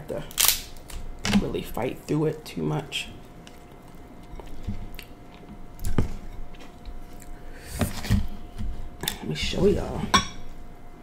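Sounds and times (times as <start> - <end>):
biting and chewing crab meat: 3.2 - 7.4.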